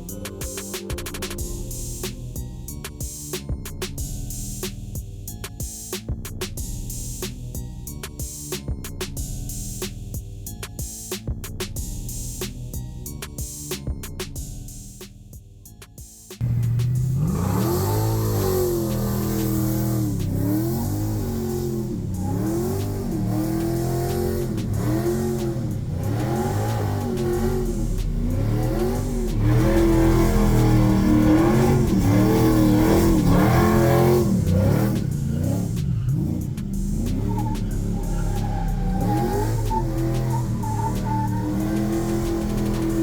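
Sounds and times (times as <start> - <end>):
car engine revving: 16.4 - 43.0.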